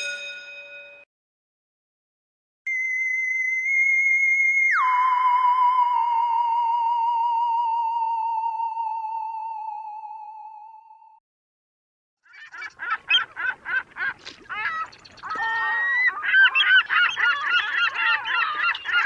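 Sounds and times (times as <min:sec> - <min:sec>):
electronic whistle-like tone: 0:02.7 - 0:10.9.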